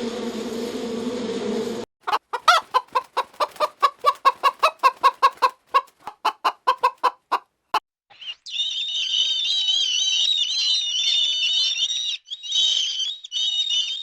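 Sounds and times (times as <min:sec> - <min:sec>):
chicken clucking: 0:02.0 - 0:07.8.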